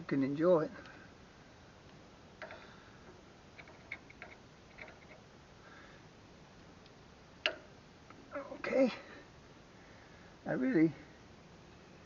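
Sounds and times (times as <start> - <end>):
screwdriver tapping metal parts: 2.4 - 2.6.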